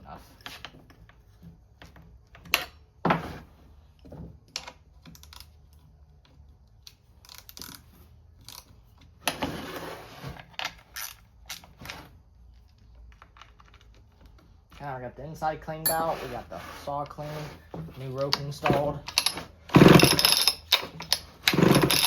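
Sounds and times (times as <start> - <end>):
rough scraping rattle: 15.9 - 22.0.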